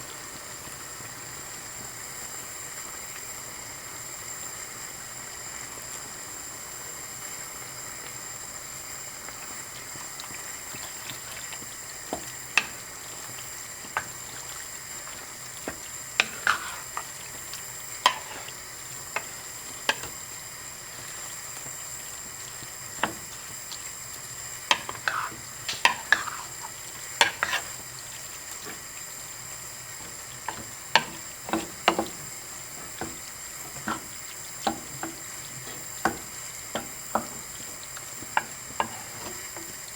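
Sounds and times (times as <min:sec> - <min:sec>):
food sizzling in a frying pan: 0:00.0 - 0:39.9
utensil knocking and scraping pan: 0:30.5 - 0:37.4.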